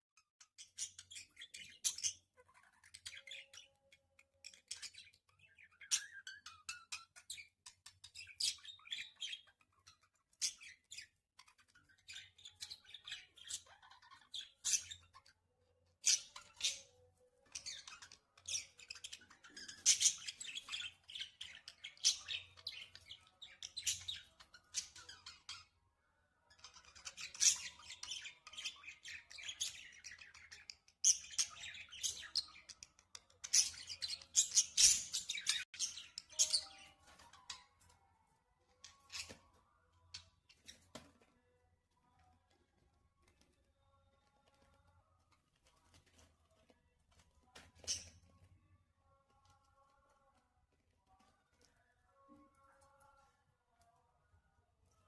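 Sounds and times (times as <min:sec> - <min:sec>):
budgerigars chirping and squawking: 0:00.2 - 0:25.8, 0:26.5 - 0:37.8, 0:38.7 - 0:39.6.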